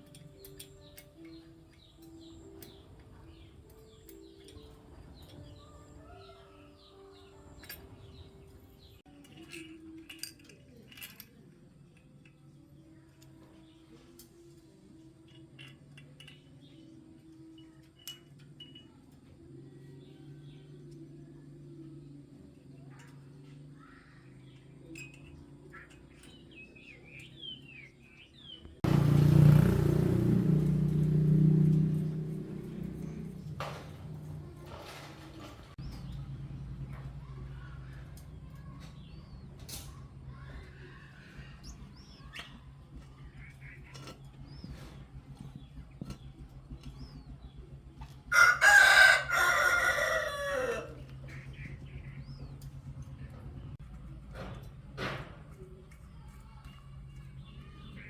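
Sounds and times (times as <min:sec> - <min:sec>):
small birds chirping: 0:00.0 - 0:58.0
rooster crowing: 0:48.3 - 0:51.1.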